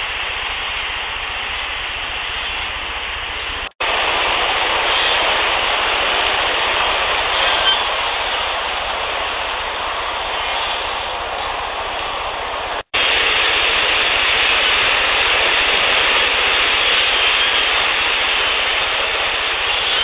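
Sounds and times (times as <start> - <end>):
loud steady hiss: 0.0 - 20.0
faint high whistle: 7.4 - 8.0, 19.7 - 20.0.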